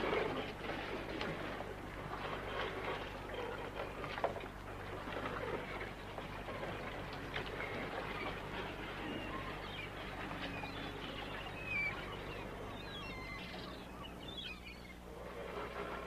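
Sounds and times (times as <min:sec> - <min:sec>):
faint outdoor background noise: 0:00.0 - 0:16.0
birds chirping: 0:05.9 - 0:15.4.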